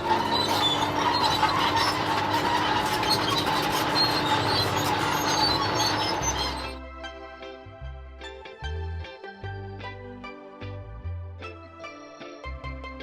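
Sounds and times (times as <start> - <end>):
bulldozer engine whining: 0.0 - 6.8
metallic clatter of tracks: 0.0 - 6.8.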